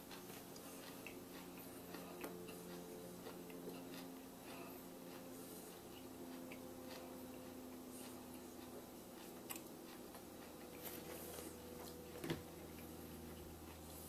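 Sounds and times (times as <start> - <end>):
chewing crunchy pepper: 0.0 - 14.0
low steady hum: 0.0 - 14.0.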